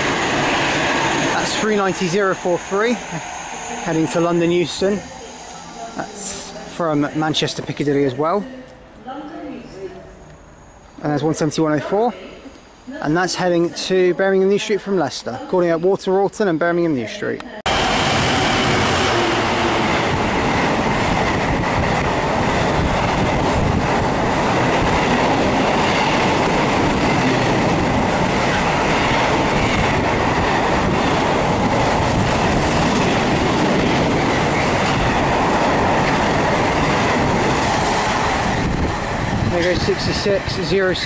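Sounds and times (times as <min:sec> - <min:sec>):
freight train wheels rumbling: 0:00.0 - 0:08.1, 0:17.7 - 0:41.0.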